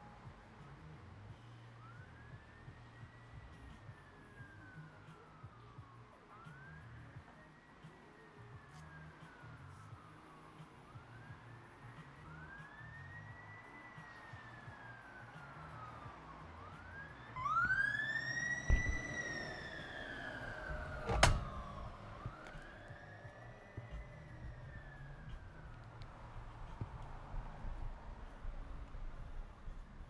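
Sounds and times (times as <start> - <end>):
emergency siren wailing: 9.0 - 30.0.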